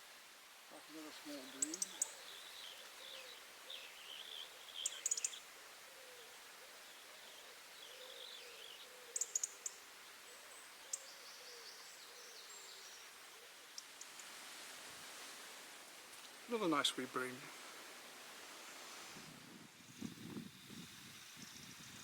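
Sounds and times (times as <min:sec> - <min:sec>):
low repeated bird call: 0:00.8 - 0:14.3
bird twittering song: 0:01.0 - 0:05.5, 0:06.9 - 0:14.3.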